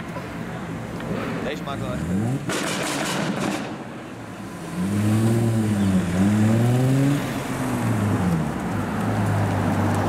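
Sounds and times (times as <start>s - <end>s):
car engine revving hard: 4.5s - 8.3s.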